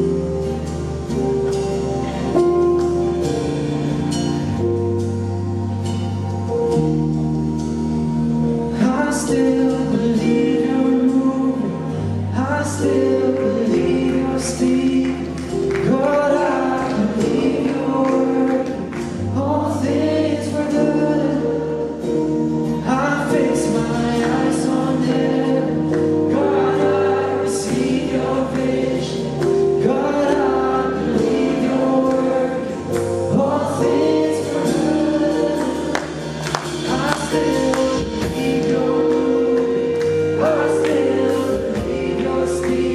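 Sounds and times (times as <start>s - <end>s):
bass line: 0.0s - 42.9s
held chords: 0.0s - 42.9s
group of voices singing: 8.7s - 42.9s.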